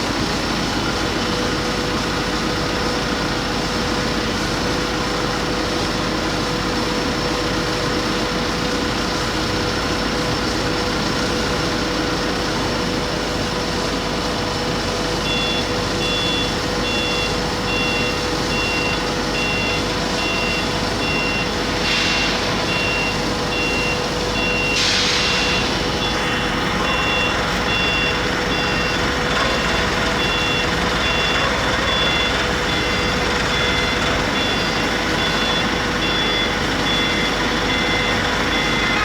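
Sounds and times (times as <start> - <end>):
industrial machinery hum: 0.0 - 39.0
electronic warning beeper: 15.2 - 39.0
short bursts of hiss: 24.7 - 25.6.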